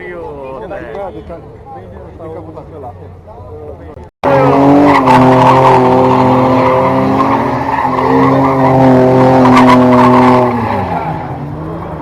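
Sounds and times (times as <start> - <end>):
tyres skidding: 1.0 - 12.0
car engine revving high: 4.2 - 12.0.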